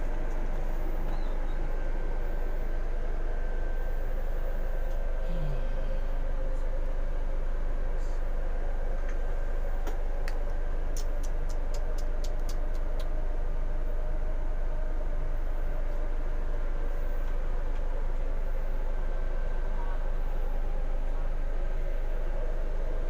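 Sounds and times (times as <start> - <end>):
bus cabin drone: 0.0 - 23.0
sharp clicks: 11.0 - 13.1.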